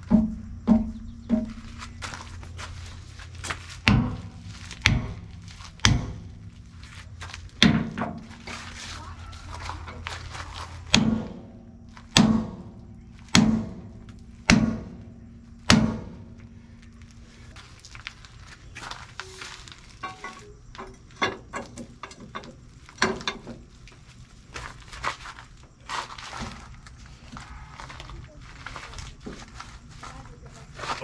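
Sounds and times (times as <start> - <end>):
metal clanks and knocks: 0.0 - 17.7, 18.9 - 24.0
heavy hammer striking steel: 3.9 - 6.6, 10.8 - 16.3.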